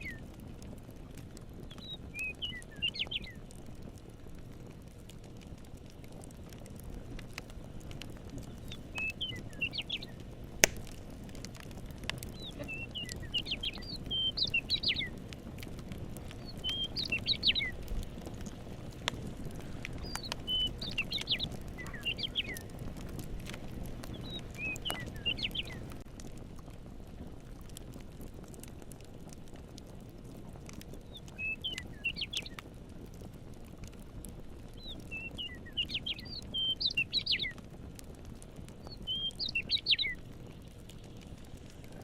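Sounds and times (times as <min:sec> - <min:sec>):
campfire crackling: 0:00.0 - 0:42.0
songbird chirping: 0:01.7 - 0:03.4, 0:08.6 - 0:10.2, 0:12.3 - 0:15.1, 0:16.4 - 0:17.8, 0:19.9 - 0:22.7, 0:24.1 - 0:25.9, 0:31.2 - 0:32.6, 0:34.8 - 0:37.6, 0:38.9 - 0:40.2.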